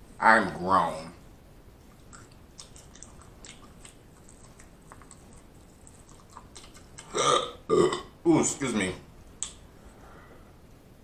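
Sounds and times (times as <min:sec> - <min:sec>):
wet chewing and smacking: 0:01.9 - 0:07.2.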